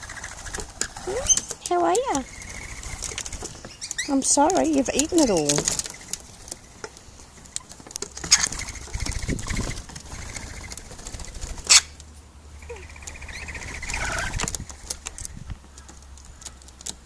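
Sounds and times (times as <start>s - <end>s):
bird wing flaps: 0.0s - 12.0s, 12.6s - 15.8s
buzzy chattering bird calls: 0.0s - 16.7s
small clicks and scratches: 14.0s - 17.0s.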